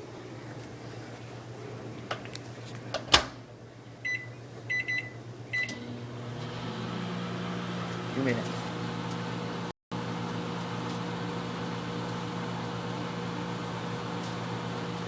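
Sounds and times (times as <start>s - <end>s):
microwave oven humming: 2.8s - 15.0s
keypad beeps: 4.0s - 5.7s.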